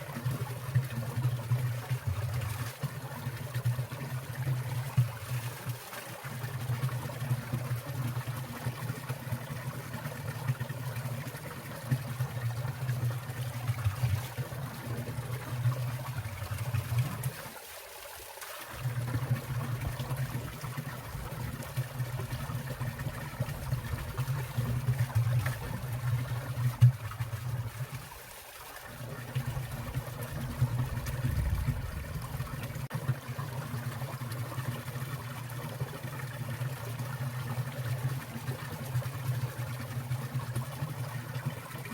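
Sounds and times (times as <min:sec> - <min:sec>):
mountain stream trickling and splashing: 0:00.0 - 0:41.9
low water rushing: 0:18.8 - 0:32.9.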